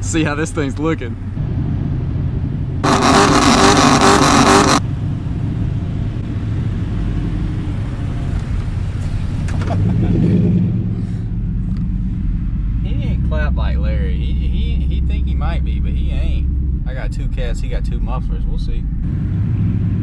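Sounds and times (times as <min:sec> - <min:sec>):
truck engine exhaust drone: 0:01.3 - 0:09.3
loud burst of noise: 0:02.8 - 0:04.8.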